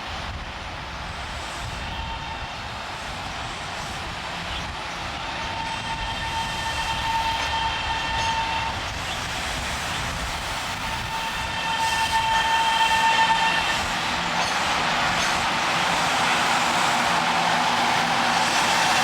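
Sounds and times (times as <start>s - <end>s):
train running noise: 0.0s - 19.0s
train horn tones: 1.8s - 2.5s, 5.4s - 8.8s, 10.8s - 14.1s.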